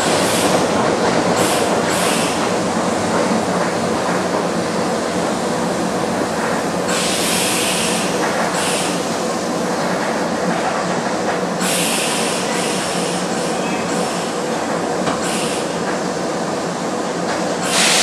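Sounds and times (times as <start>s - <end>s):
train wheels rumbling: 0.0s - 18.0s
short bursts of high hiss: 17.6s - 18.0s.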